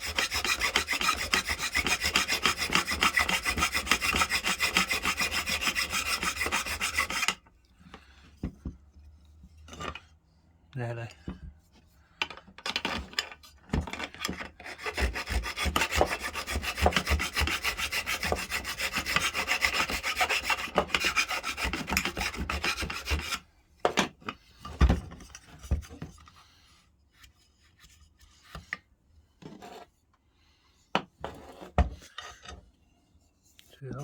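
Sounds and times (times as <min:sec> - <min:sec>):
file scraping on metal: 0:00.0 - 0:07.5, 0:12.9 - 0:23.5, 0:29.4 - 0:29.9, 0:31.2 - 0:32.6.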